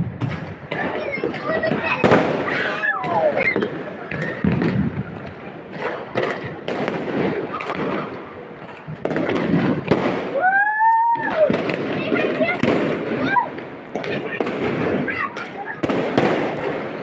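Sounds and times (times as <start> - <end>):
fireworks bangs and crackles: 0.0 - 17.0
voices: 0.4 - 17.0.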